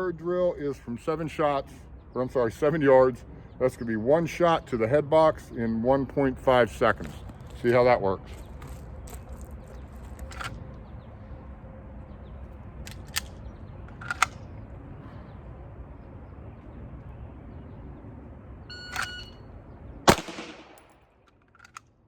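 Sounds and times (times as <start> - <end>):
shot timer beep: 18.7 - 19.4
pistol shot with echo: 20.1 - 21.1.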